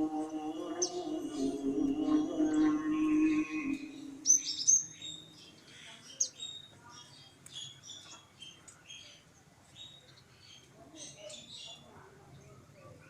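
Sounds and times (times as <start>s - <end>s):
lovebirds chirping: 0.0s - 9.2s.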